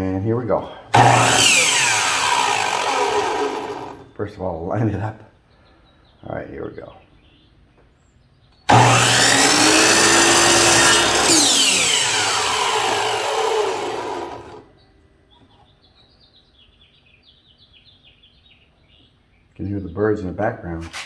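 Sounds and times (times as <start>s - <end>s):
birds chirping: 0.0s - 20.2s
miter saw cutting wood: 0.9s - 4.1s, 8.7s - 14.7s.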